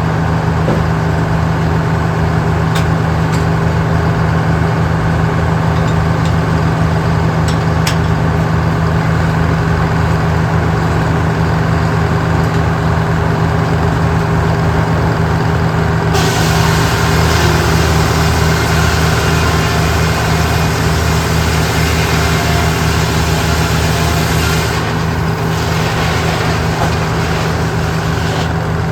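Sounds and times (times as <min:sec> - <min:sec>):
large engine running: 0:00.0 - 0:28.9
hiss: 0:16.2 - 0:28.6.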